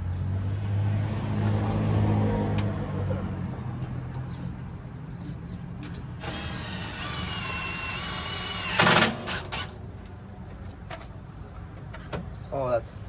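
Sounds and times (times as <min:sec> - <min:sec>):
cordless drill driving screw: 0:06.2 - 0:09.8
drill clicks: 0:06.2 - 0:09.8.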